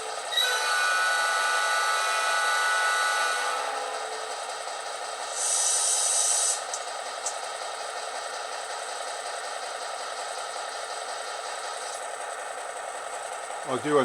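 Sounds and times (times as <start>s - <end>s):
diesel locomotive idling through small speakers: 0.0s - 14.0s
burst of hiss: 5.4s - 6.7s.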